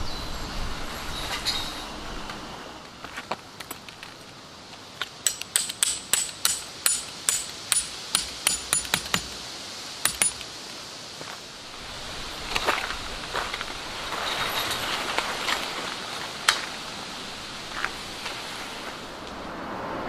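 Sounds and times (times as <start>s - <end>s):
hammer striking metal stake: 5.2s - 9.4s, 10.0s - 10.5s.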